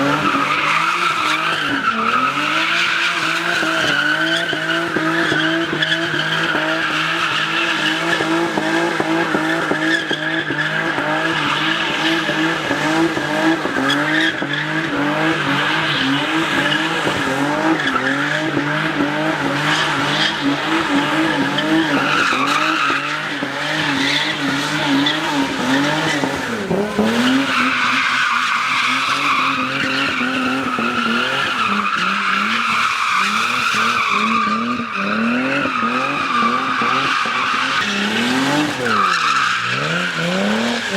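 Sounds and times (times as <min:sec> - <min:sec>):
car engine revving hard: 0:00.0 - 0:40.9
tyre squeal: 0:19.5 - 0:40.9.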